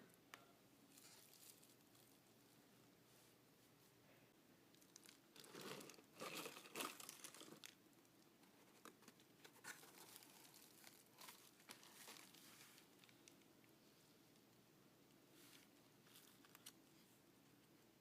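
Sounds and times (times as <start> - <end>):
packaging crinkling and rustling: 0.9 - 2.2, 4.7 - 7.8, 8.6 - 13.4, 15.4 - 16.8.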